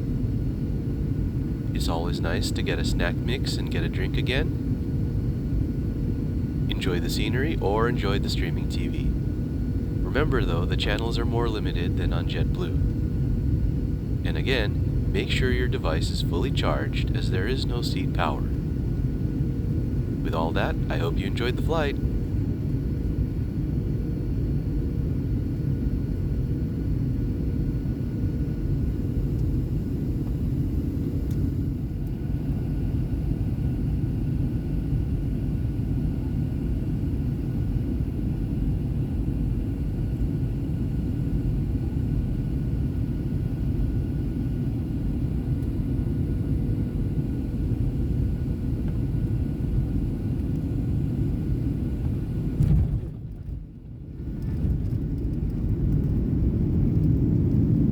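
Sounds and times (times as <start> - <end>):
faint high whine: 0.0 - 33.8
engine and airflow rumble: 0.0 - 57.9.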